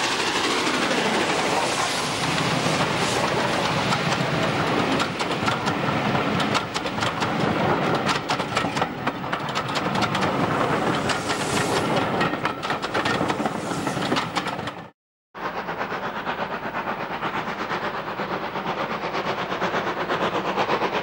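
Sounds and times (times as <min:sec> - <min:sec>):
train wheels clattering over rail joints: 0:01.5 - 0:14.9.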